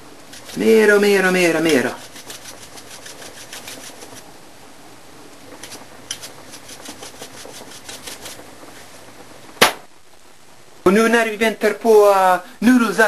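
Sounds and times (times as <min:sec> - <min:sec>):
salt shaker rattling: 0:00.3 - 0:00.8, 0:01.6 - 0:04.2, 0:05.6 - 0:08.4.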